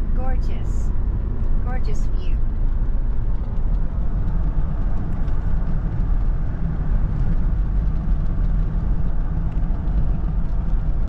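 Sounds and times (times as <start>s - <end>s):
vehicle cabin road and engine rumble: 0.0s - 11.0s.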